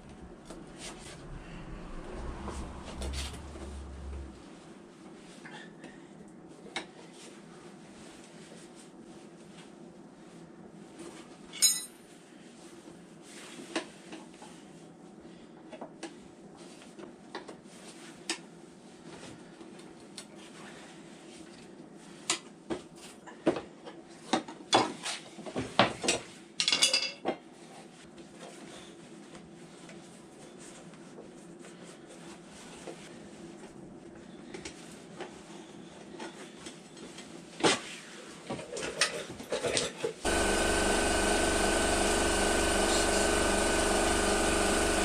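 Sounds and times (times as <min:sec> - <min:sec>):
metal objects clinking: 0:11.6 - 0:11.9.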